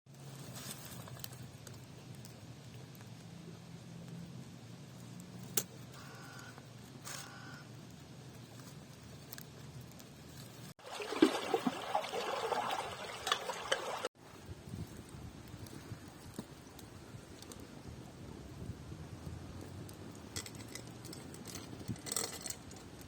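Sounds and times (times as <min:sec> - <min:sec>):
liquid splashing: 0:10.8 - 0:14.1.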